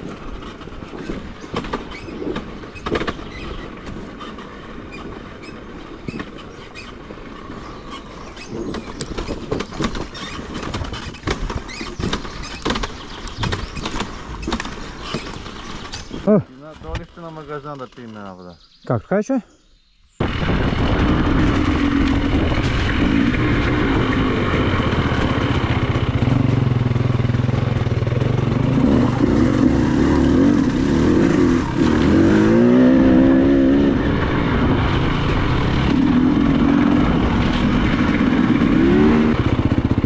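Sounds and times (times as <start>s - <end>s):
motorcycle engine revving: 20.2s - 40.0s.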